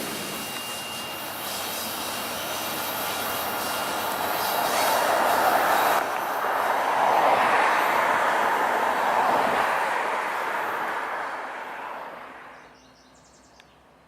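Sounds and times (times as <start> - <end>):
train wheels on rails: 0.0 - 8.7.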